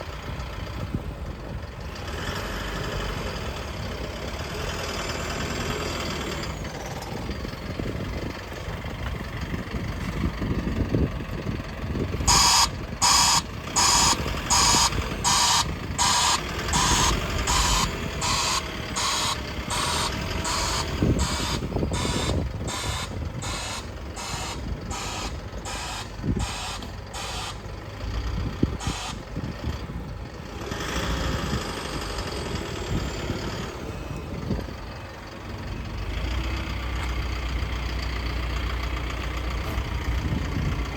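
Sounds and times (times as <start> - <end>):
diesel truck engine running: 0.0 - 40.9
reversing alarm beeping: 12.2 - 27.7, 28.8 - 29.2.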